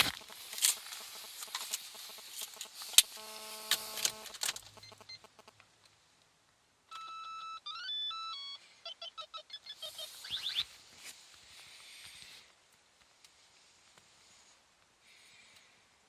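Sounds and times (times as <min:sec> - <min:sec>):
clicks and crunching: 0:00.0 - 0:05.0
electronic beep: 0:00.0 - 0:05.5, 0:06.9 - 0:10.6
electronic tune of beeps: 0:00.0 - 0:05.5.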